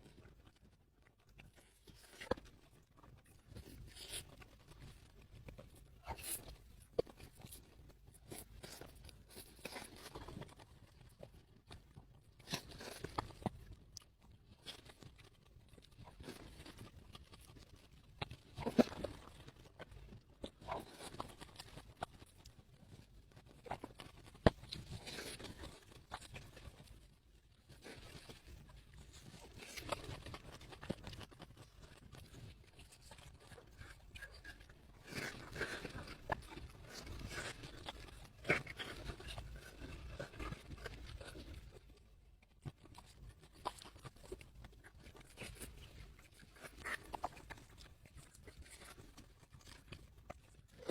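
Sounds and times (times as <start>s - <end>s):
crunchy food being chewed: 0.0s - 50.9s.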